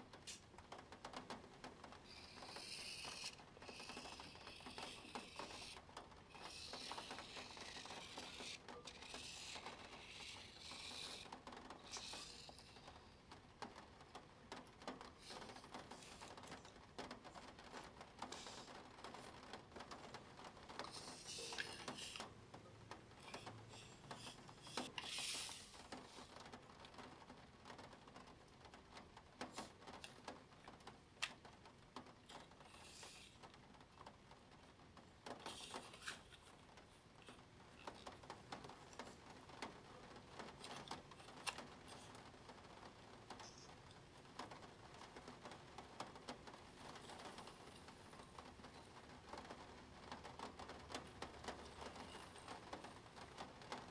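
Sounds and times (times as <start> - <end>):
pen scratching on paper: 2.0 - 13.0, 20.8 - 22.2.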